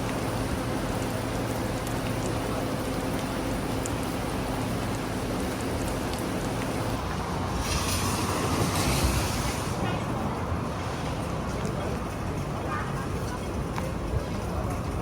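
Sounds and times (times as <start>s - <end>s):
rain: 0.0s - 15.0s
rushing wind: 6.8s - 13.0s.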